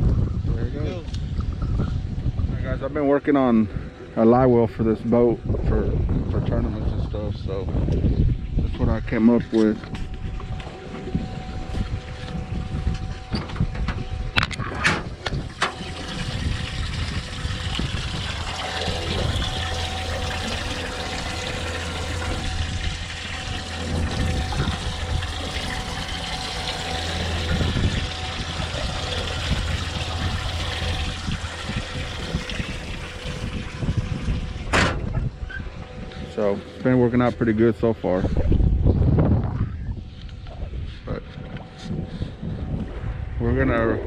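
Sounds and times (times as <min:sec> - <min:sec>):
low pump hum: 0:00.0 - 0:44.0
water pouring into tank: 0:15.4 - 0:34.8.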